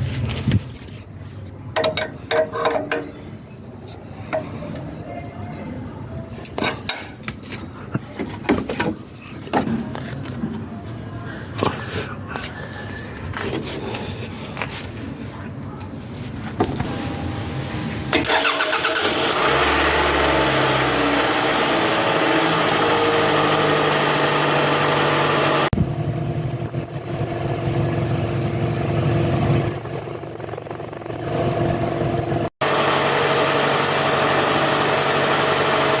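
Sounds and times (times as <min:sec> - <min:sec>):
car engine starting and revving: 0:16.8 - 0:25.8, 0:31.2 - 0:36.0.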